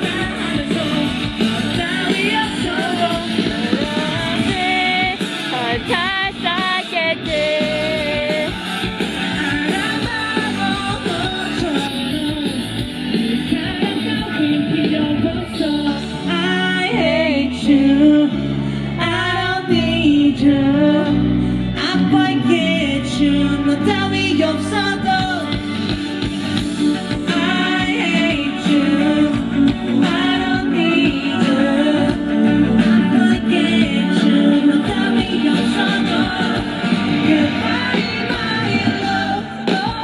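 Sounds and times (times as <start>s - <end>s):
man singing: 0.0s - 8.6s, 27.0s - 40.0s
live pop-rock band: 0.0s - 40.0s.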